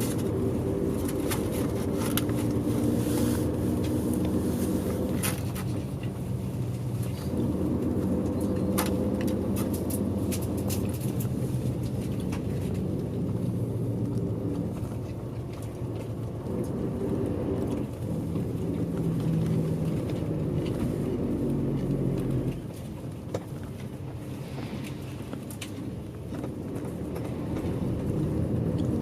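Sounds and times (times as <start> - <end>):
bus engine and road noise: 0.0 - 29.0.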